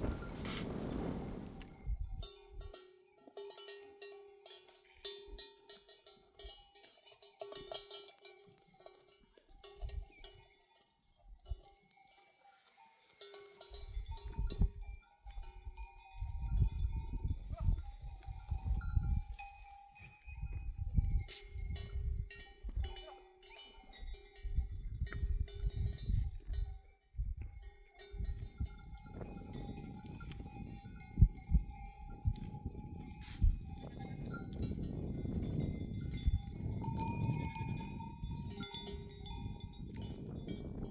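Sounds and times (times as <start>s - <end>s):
low rumbling gusts: 0.0s - 2.2s
sheep bells clinking: 0.0s - 40.9s.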